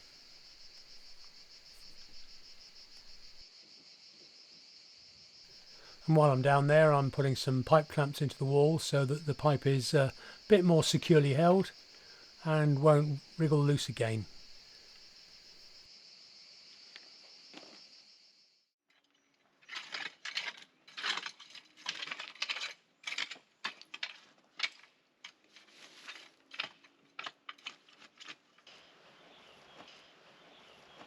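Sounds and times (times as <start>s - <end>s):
crickets chirping: 0.0s - 18.6s.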